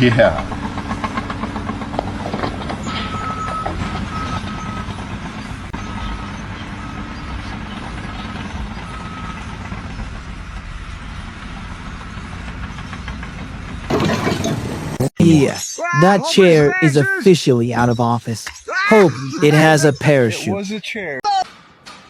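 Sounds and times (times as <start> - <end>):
heavy engine running: 0.0 - 15.2.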